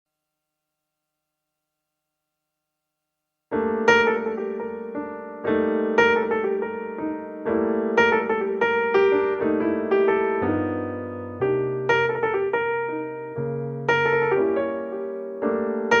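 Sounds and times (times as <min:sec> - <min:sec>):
soft slow piano piece: 0:03.5 - 0:16.0.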